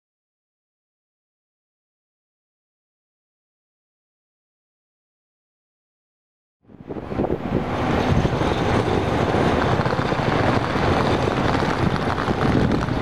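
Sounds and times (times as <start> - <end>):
high-speed train rumbling: 6.7 - 13.0.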